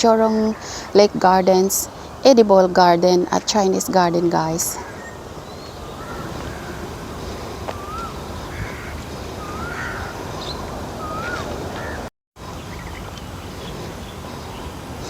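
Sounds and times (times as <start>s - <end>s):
outdoor background noise: 0.0s - 15.0s
bird calling: 4.2s - 15.0s.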